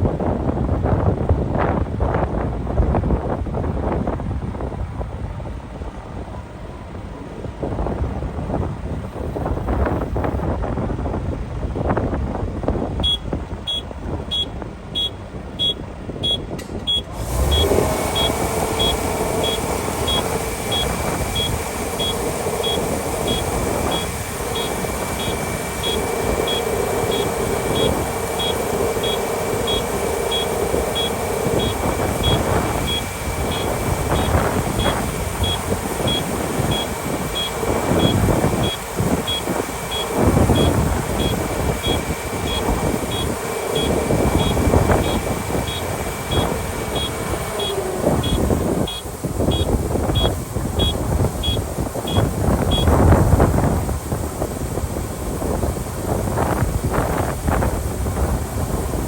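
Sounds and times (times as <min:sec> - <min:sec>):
combine harvester drone: 0:00.0 - 0:59.0
steady whine: 0:12.7 - 0:59.0
short high beeps: 0:13.0 - 0:52.9.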